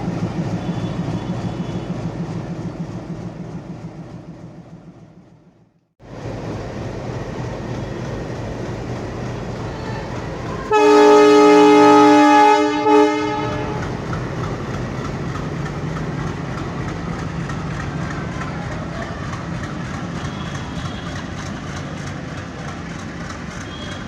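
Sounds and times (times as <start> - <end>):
locomotive engine humming: 0.0 - 24.0
train wagons rumbling on rails: 0.0 - 24.0
train horn blast: 0.4 - 2.1, 10.5 - 14.2.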